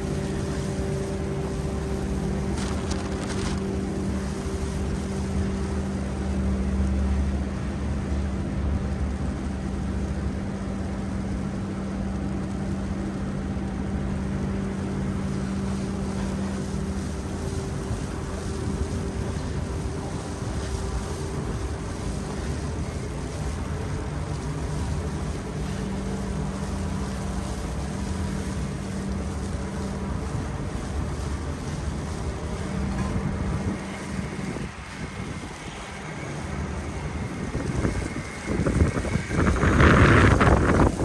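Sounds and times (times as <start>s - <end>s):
steady hum: 0.0s - 41.0s
traffic engines rumbling: 14.9s - 41.0s
wind on microphone: 15.1s - 41.0s.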